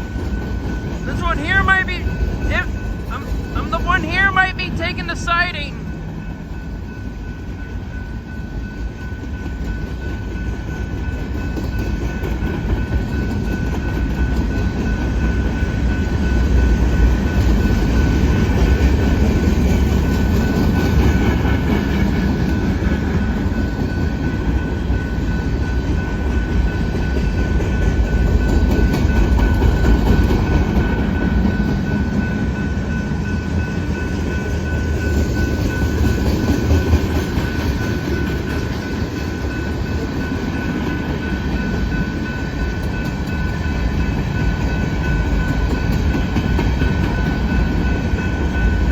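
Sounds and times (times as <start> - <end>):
train wheels rumbling on rail: 0.0 - 48.9.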